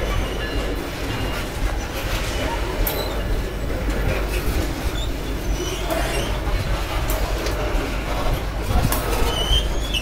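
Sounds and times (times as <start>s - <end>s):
train wheels rumbling on rail: 0.0s - 10.0s
faint wheel squeaks: 4.2s - 6.6s, 9.1s - 10.0s.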